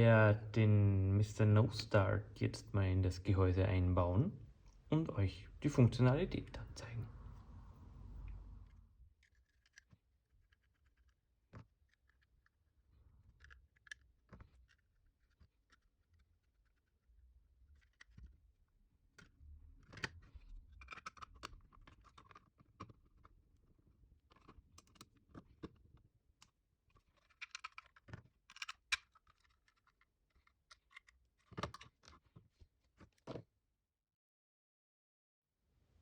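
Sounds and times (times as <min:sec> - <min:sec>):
plastic parts clicking and scraping: 0:08.3 - 0:33.5.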